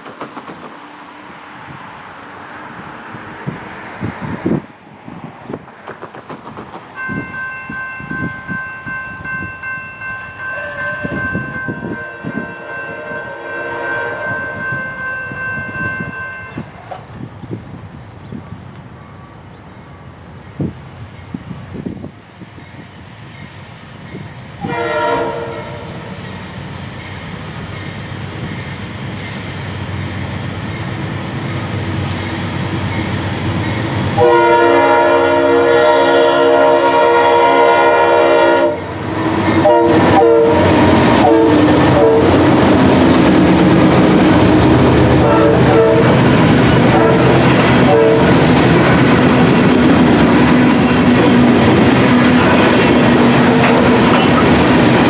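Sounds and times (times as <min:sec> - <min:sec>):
train wheels rolling on rails: 0:00.0 - 0:55.0
locomotive horn blasts: 0:10.4 - 0:15.0, 0:24.6 - 0:26.1, 0:34.2 - 0:42.4, 0:45.2 - 0:46.2, 0:46.9 - 0:48.5
locomotive engine noise: 0:38.8 - 0:55.0.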